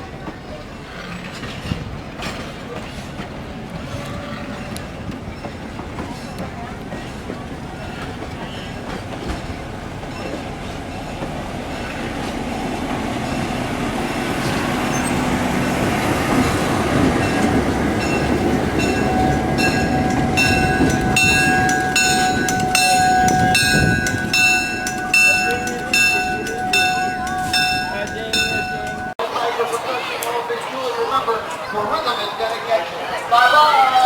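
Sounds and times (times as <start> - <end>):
train rumble: 0.0 - 34.0
bell ringing: 14.9 - 29.4.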